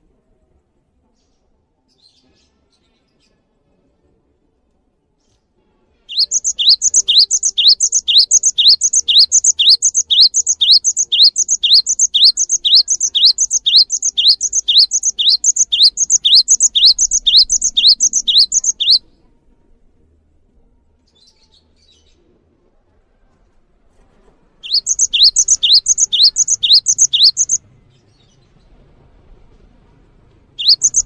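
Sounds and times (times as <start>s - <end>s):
songbird high-pitched chirps: 6.1s - 19.1s, 24.6s - 27.6s, 30.6s - 31.0s.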